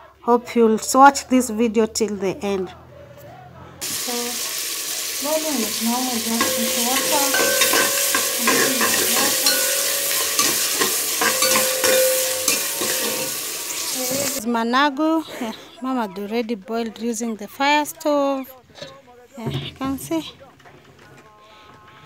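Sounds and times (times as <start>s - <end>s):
vegetables sizzling in oil: 3.8s - 14.4s
metal spoon scraping a pot: 5.6s - 14.4s.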